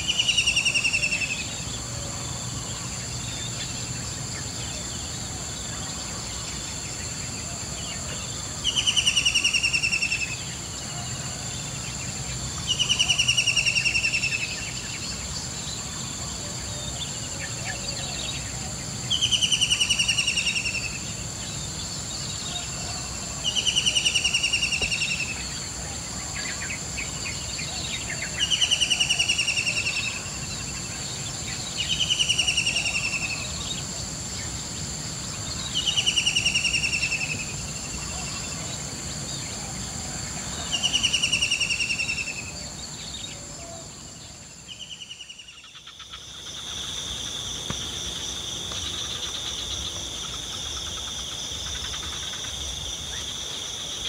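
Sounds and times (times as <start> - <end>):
high-pitched insect drone: 0.0 - 54.0.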